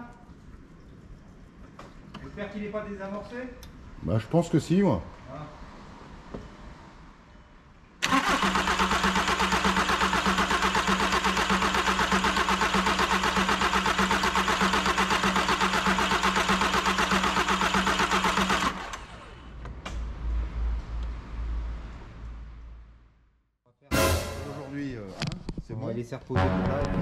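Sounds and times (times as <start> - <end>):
engine cranking on starter motor: 8.0 - 19.6.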